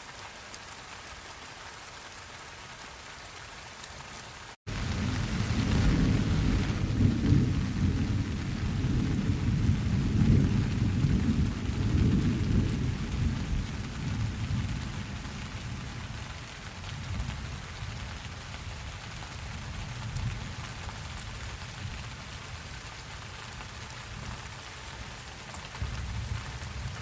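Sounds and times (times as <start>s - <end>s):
rain hiss: 0.0s - 27.0s
rolling thunder rumble: 4.7s - 17.4s.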